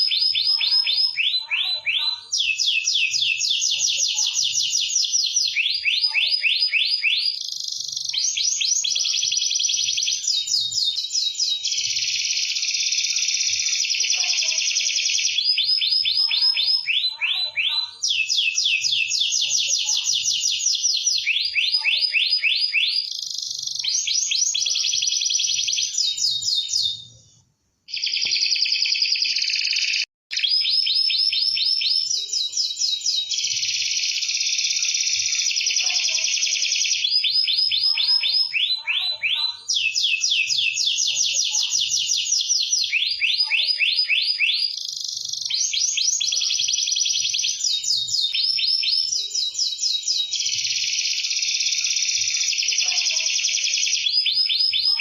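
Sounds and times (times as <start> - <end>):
canary singing trills: 0.0 - 27.3, 27.9 - 55.0.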